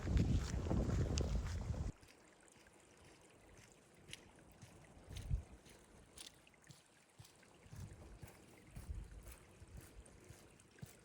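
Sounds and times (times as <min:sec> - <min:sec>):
wind on microphone: 0:00.0 - 0:01.9.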